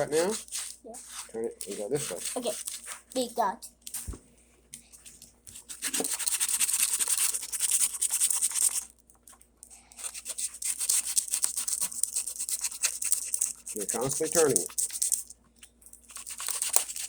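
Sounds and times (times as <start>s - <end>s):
sandpaper scratching back and forth: 0.0s - 2.9s, 5.7s - 8.8s, 10.0s - 15.1s.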